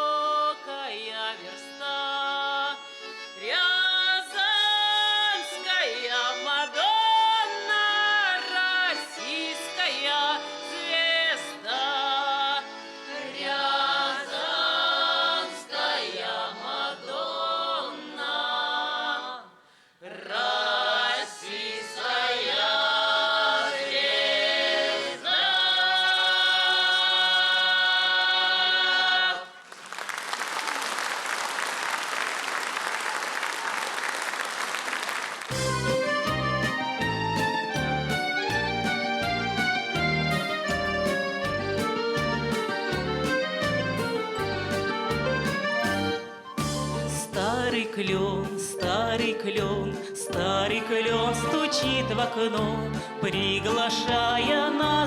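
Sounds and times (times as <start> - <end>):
group of voices singing: 5.4 - 29.6, 47.3 - 55.0.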